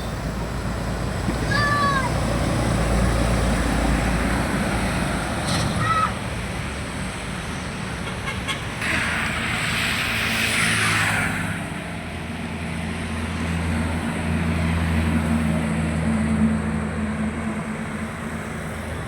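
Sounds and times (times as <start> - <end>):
truck engine humming: 0.0 - 19.0
vehicle rushing past: 8.6 - 19.0.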